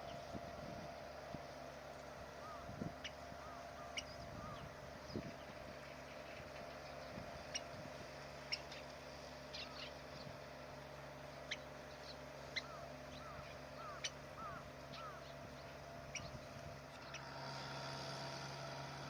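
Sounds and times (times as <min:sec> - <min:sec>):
faint steady hum: 0:00.0 - 0:19.0
bird chip calls: 0:02.4 - 0:17.4.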